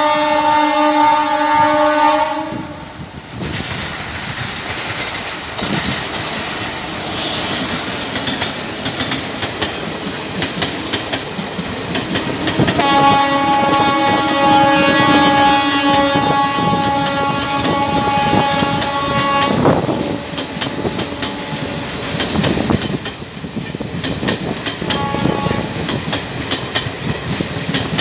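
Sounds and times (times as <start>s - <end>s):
train horn: 0.0s - 3.0s, 7.0s - 8.2s, 12.6s - 22.0s, 24.8s - 25.8s
train wheels clickety-clack: 3.2s - 28.0s.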